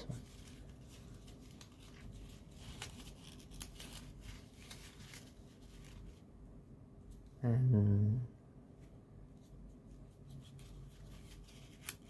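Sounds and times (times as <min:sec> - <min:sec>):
paper rustling and crinkling: 0:00.0 - 0:06.3, 0:09.4 - 0:12.0.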